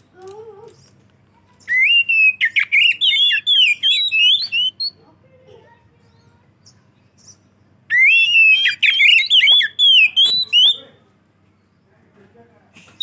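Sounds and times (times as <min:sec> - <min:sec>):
bird singing whistled phrases: 0:01.6 - 0:05.0, 0:07.2 - 0:10.9.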